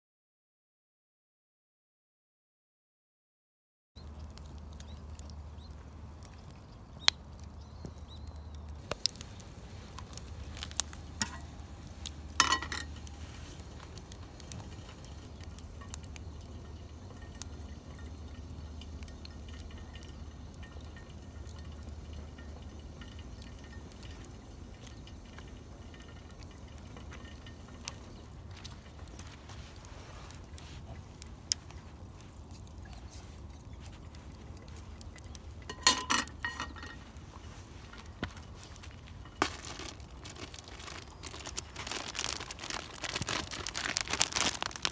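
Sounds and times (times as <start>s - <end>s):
steady low hum: 7.6s - 40.3s
light clinks and knocks: 35.2s - 37.0s.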